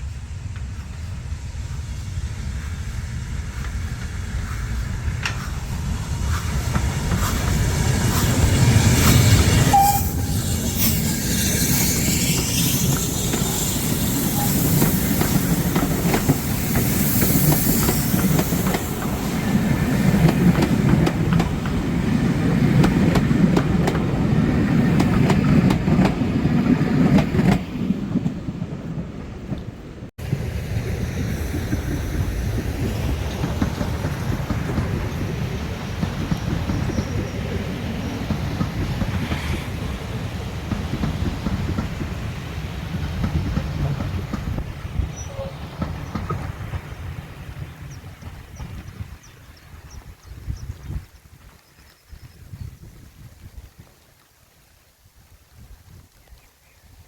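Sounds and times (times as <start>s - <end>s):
steam train rumbling along track: 0.0s - 53.8s
wheels clicking over rail joints: 3.4s - 29.8s, 31.4s - 49.0s.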